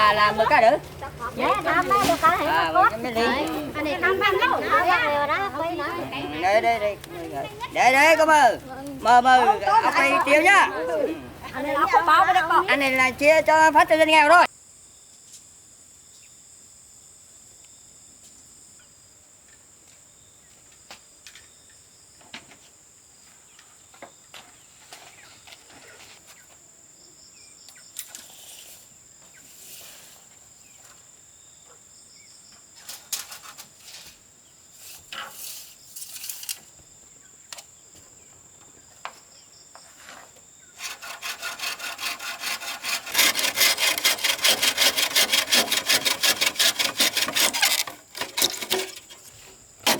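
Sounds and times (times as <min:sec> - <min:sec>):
light knocks and scrapes: 0:32.8 - 0:34.2, 0:34.8 - 0:36.8, 0:39.8 - 0:49.9
hand saw cutting wood: 0:40.8 - 0:49.9.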